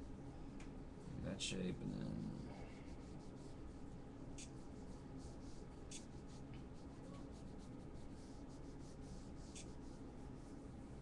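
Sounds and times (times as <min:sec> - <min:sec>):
low room hiss: 0:00.0 - 0:11.0
pencil sketching strokes: 0:02.2 - 0:10.6.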